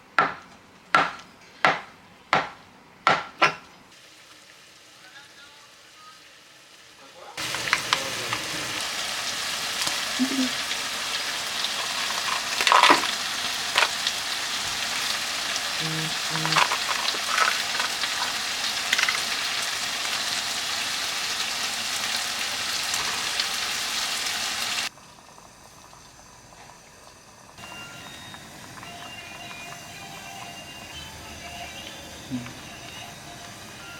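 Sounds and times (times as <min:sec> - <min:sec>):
food sizzling in a pan: 0:03.9 - 0:33.9
stirring clicks and knocks: 0:11.7 - 0:14.1, 0:16.2 - 0:19.3.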